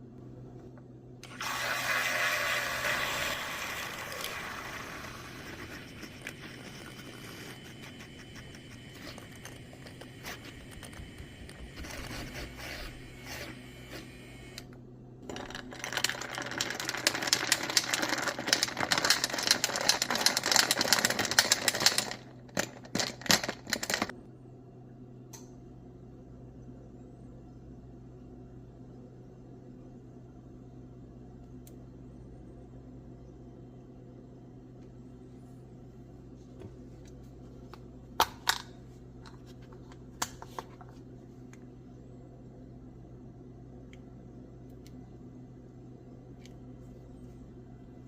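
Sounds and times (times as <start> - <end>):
low steady hum: 0.0 - 48.0
fast rattling clicks: 15.4 - 24.1.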